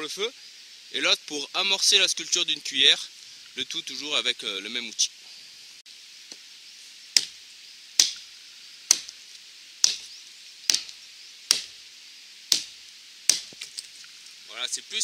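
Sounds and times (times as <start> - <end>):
hatchet chopping wood: 7.2 - 7.4, 8.0 - 8.3, 8.9 - 9.2, 9.8 - 11.8, 12.5 - 13.8.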